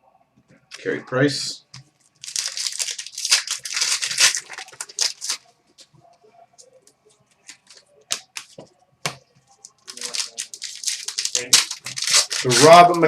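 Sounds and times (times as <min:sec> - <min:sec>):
card pack wrapper crinkling: 0:02.2 - 0:05.4, 0:07.5 - 0:08.6, 0:09.6 - 0:13.0.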